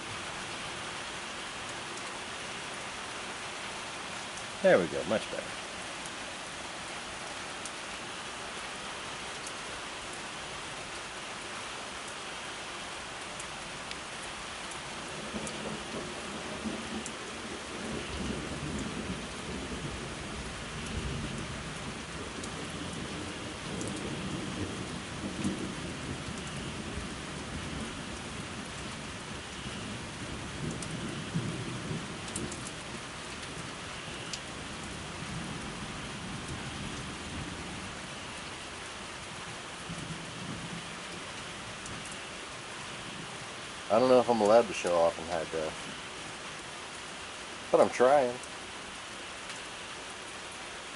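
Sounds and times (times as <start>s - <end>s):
steady rain: 0.0s - 50.9s
thunder rumbling: 15.0s - 33.6s.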